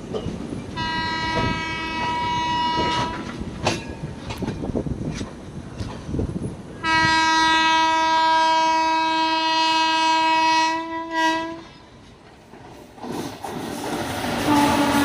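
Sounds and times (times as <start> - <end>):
train wheels clattering over rails: 0.0 - 6.8, 11.6 - 15.0
locomotive horn blast: 0.8 - 3.3, 6.8 - 11.7, 14.4 - 15.0.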